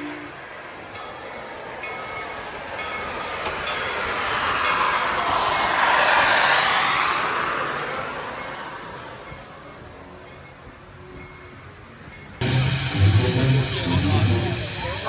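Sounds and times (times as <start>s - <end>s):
steam hissing and running gear: 12.4s - 15.0s
steam locomotive whistle: 12.4s - 15.0s.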